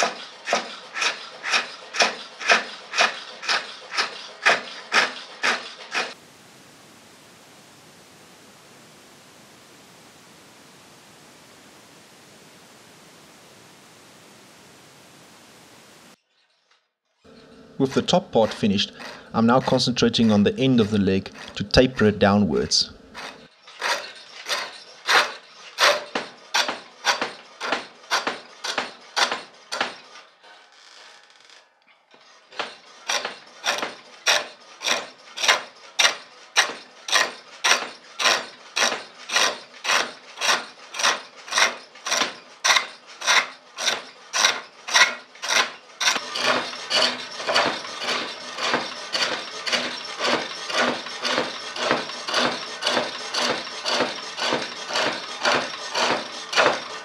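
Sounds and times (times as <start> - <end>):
chisel cutting spinning wood: 0.0 - 6.2, 17.3 - 30.2, 32.4 - 57.0
steady wood scraping: 0.0 - 6.2, 17.3 - 30.2, 32.4 - 57.0.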